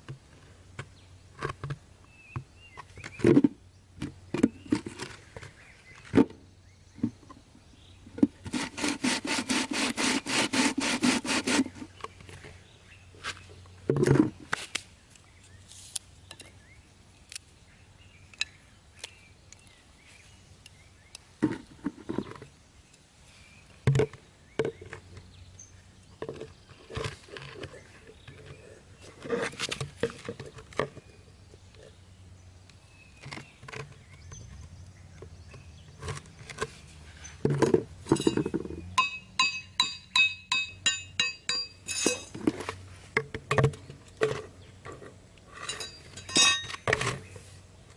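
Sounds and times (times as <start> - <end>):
hand tool knocks and clicks: 37.4 - 42.4
ringing metallic taps: 38.1 - 42.3, 45.7 - 46.8.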